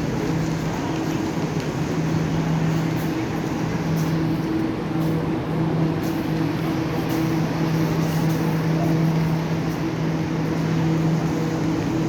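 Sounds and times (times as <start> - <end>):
train mechanical hum: 0.0 - 12.0.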